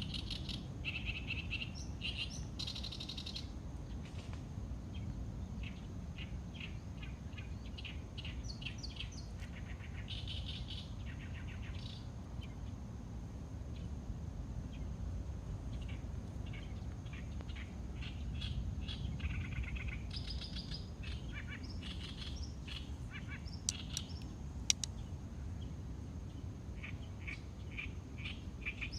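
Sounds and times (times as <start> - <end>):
small birds chirping: 0.0 - 4.3, 4.9 - 12.8, 15.6 - 28.9
sharp clicks: 23.6 - 25.0.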